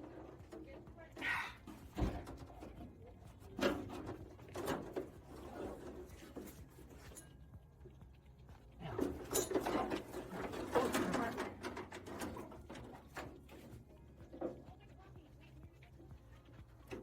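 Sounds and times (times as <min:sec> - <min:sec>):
rustling and scraping: 0:00.0 - 0:15.2.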